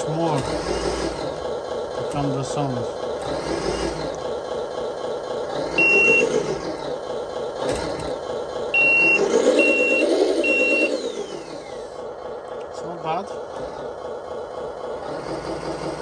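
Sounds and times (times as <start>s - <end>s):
simulated truck engine revving: 0.0s - 16.0s
high electronic beeps: 5.8s - 6.4s, 8.8s - 11.0s.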